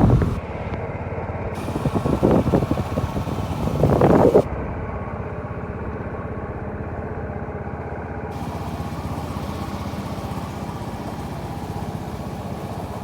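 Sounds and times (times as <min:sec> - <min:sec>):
motorcycle engine running: 0:00.0 - 0:04.5, 0:08.3 - 0:13.0.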